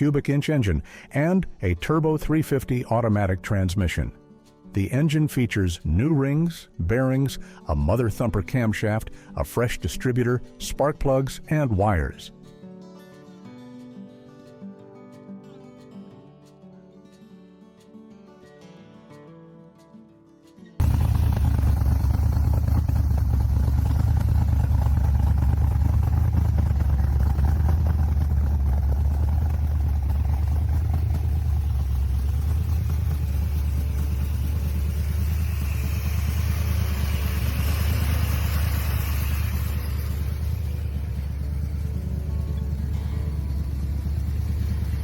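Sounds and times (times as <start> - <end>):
car engine with pulsing exhaust: 20.8 - 45.0
hissing noise: 33.2 - 45.0.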